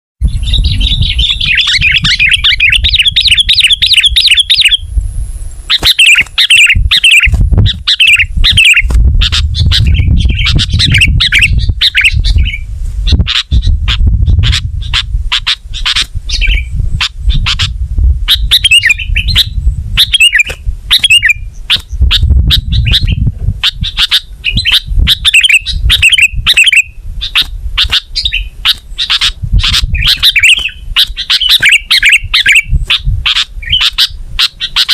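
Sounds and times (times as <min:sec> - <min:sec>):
bird chattering chirps: 0:00.2 - 0:04.8, 0:05.7 - 0:34.9.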